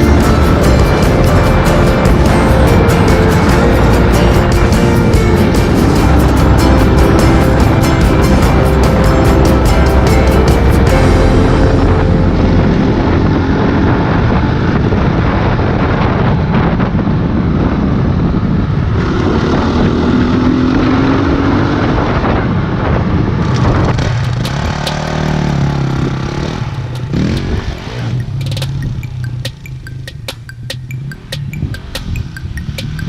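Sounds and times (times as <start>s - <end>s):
wind buffeting microphone: 0.0s - 29.6s
dirt bike engine revving: 23.7s - 30.1s.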